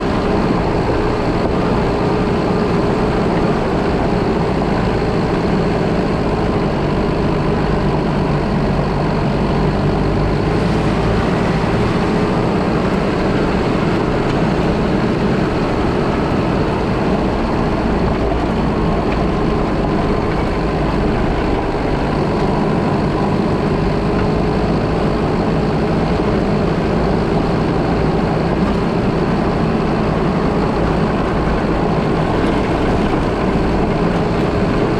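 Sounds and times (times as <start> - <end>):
car engine running: 0.0 - 34.9
tyre and road noise: 0.0 - 34.9.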